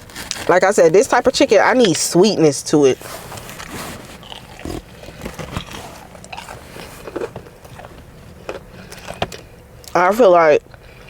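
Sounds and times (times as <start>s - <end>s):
person chewing crispy food: 0.0s - 1.1s, 3.2s - 10.0s.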